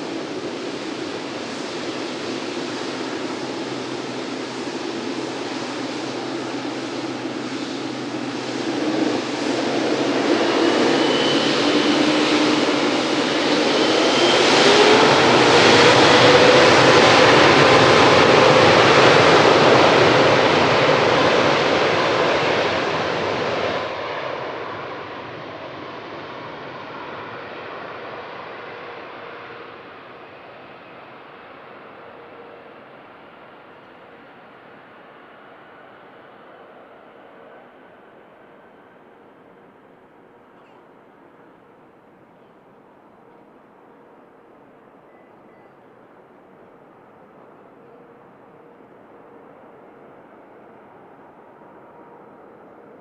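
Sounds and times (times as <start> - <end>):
jet engines whining: 0.0 - 39.2.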